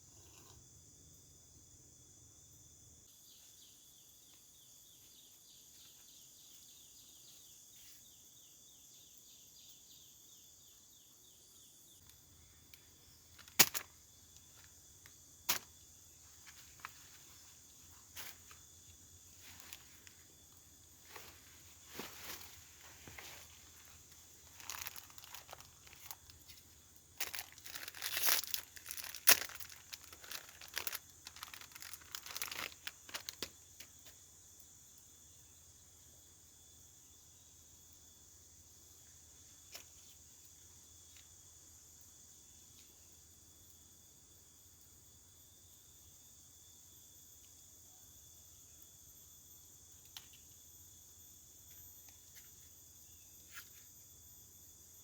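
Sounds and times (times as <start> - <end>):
insects droning: 0.0 - 55.0
crinkling and tearing handling: 22.0 - 33.6.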